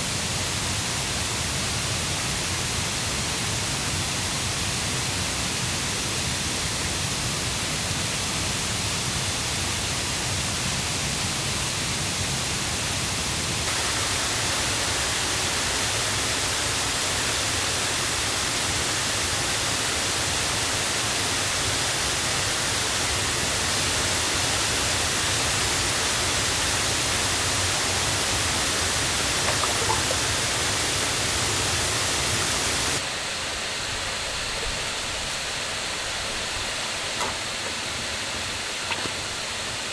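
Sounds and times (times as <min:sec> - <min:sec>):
river and waterfall rushing: 0:13.7 - 0:33.8.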